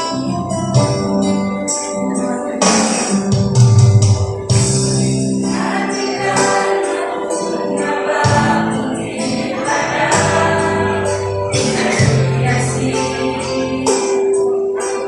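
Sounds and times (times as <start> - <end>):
instrumental accompaniment: 0.0 - 15.0
choir singing in parts: 5.4 - 15.0.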